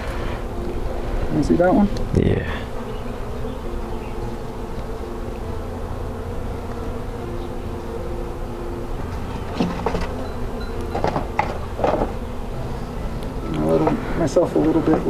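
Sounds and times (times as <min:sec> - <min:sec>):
honeybees buzzing: 0:00.0 - 0:15.0
short knocks of hive frames: 0:09.0 - 0:12.6, 0:13.2 - 0:15.0.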